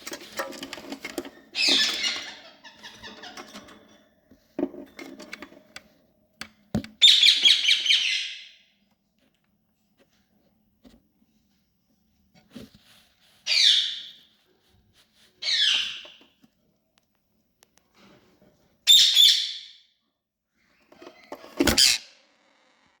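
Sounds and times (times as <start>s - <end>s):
parakeet chicks rasping calls: 1.5s - 3.4s, 13.4s - 14.2s, 15.4s - 16.2s, 21.8s - 22.2s.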